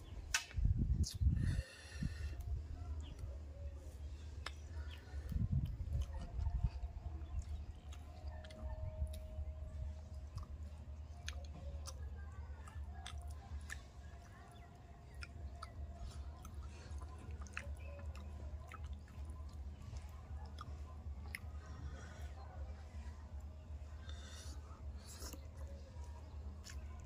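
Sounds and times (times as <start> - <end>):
steady low rumble: 0.0 - 27.0
person chewing and lip smacking: 0.3 - 27.0.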